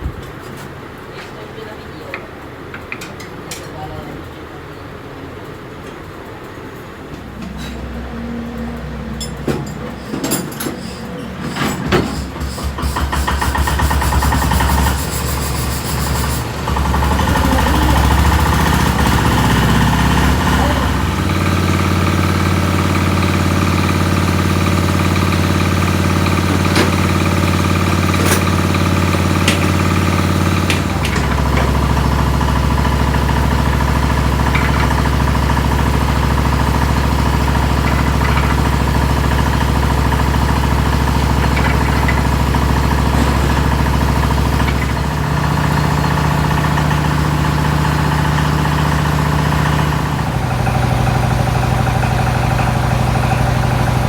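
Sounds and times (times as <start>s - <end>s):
machine motor humming: 12.2s - 54.0s.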